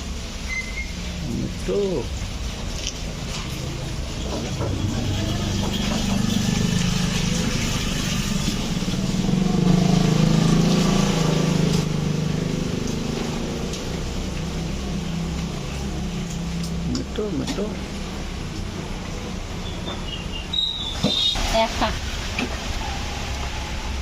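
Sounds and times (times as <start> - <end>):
vehicle engine passing: 1.0 - 24.0.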